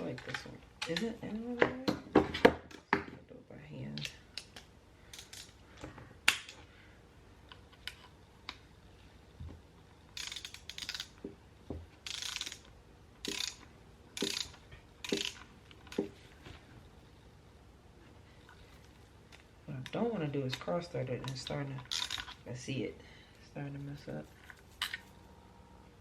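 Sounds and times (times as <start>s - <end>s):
ratchet wrench clicking: 10.2s - 11.2s, 12.0s - 16.0s.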